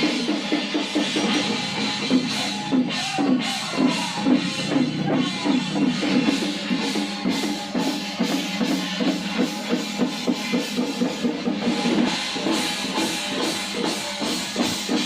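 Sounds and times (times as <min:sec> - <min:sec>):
drum-led percussion music: 0:00.0 - 0:15.0.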